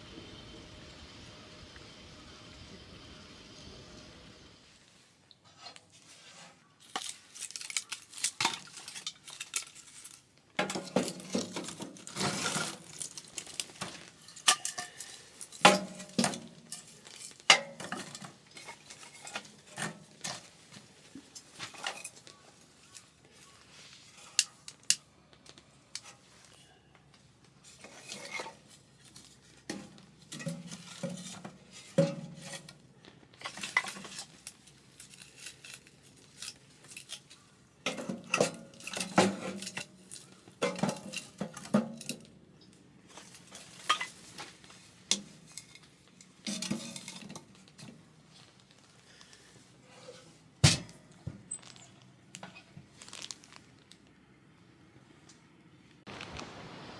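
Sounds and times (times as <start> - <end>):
utensils clinking and scraping dishes: 5.5 - 25.0, 27.6 - 28.8, 29.7 - 32.8, 33.4 - 42.3, 43.1 - 44.5, 45.1 - 47.9.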